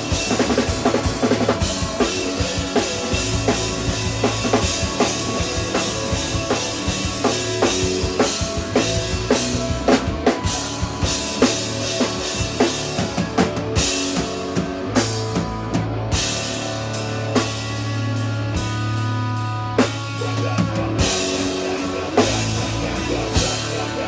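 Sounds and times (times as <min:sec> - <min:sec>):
electric guitar lines: 0:00.0 - 0:24.0
low bass notes: 0:00.0 - 0:24.0
drum kit kick and snare: 0:19.8 - 0:24.0.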